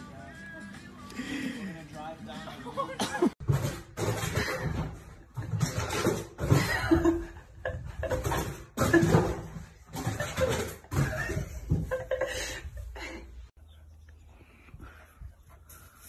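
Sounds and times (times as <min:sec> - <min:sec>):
person laughing hard: 0:10.1 - 0:13.4.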